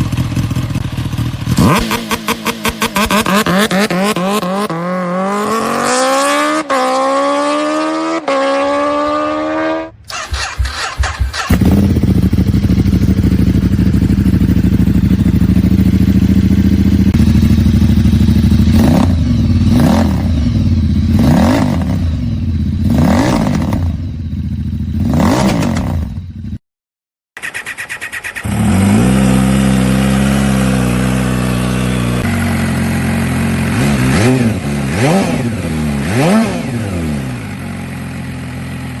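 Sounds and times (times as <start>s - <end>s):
motorcycle idling: 0.0s - 1.7s, 10.1s - 23.0s, 23.6s - 25.1s, 27.4s - 34.9s, 37.0s - 39.0s
motorcycle accelerating hard: 0.0s - 24.1s, 24.7s - 26.5s, 27.6s - 39.0s
motorcycle throttle blips: 9.8s - 22.9s.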